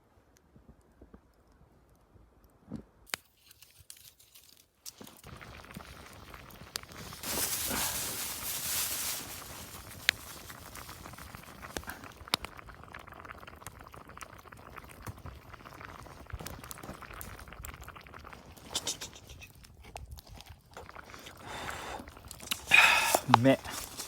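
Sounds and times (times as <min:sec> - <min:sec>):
stew simmering and bubbling: 0:03.7 - 0:24.0
rushing hiss: 0:07.2 - 0:10.2.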